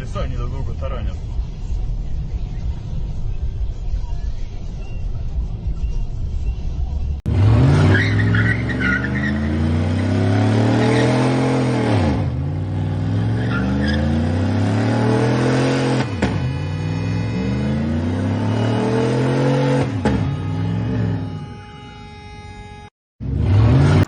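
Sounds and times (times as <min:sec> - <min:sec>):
car engine revving: 0:07.3 - 0:24.0.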